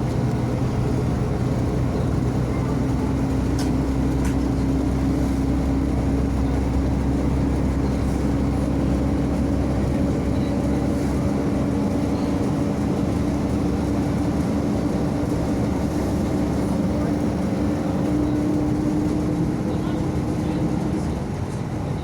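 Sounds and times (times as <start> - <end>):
bus diesel engine droning: 0.0 - 22.0.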